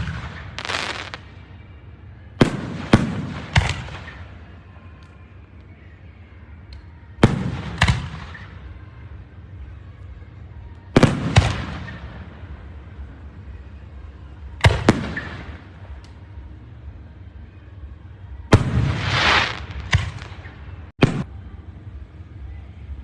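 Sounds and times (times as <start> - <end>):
fireworks bangs echoing: 0.0 - 1.2, 2.4 - 4.4, 11.0 - 12.6, 14.6 - 16.0, 18.5 - 21.3.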